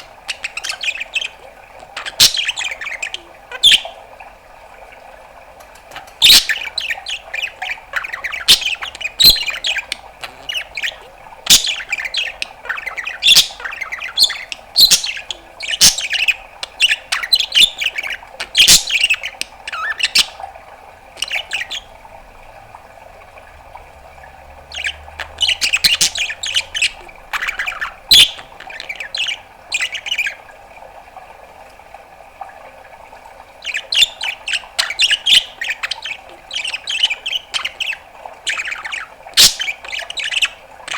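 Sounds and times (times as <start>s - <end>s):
budgerigar chattering: 0.0s - 3.9s, 6.0s - 20.4s, 24.7s - 30.4s, 33.6s - 40.9s
faint steady hum: 0.0s - 40.9s.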